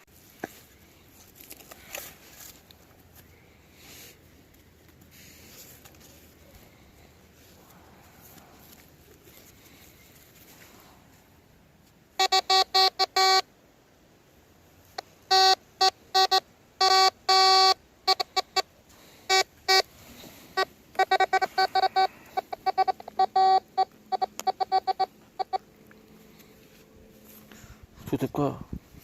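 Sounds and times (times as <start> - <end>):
metal detector beeps: 12.2 - 13.5, 15.0 - 19.9, 20.5 - 25.6.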